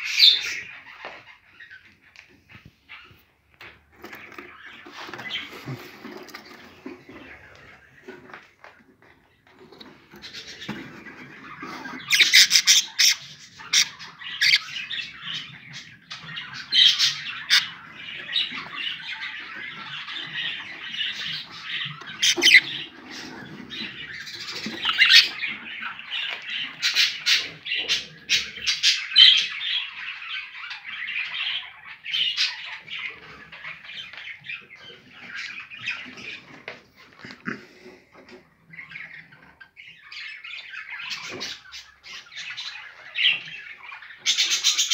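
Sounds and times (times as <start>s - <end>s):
budgerigars chattering: 9.7s - 44.9s.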